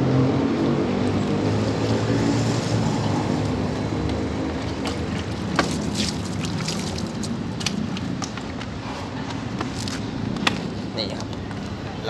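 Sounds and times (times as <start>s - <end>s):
vehicle engine passing: 0.0s - 7.6s.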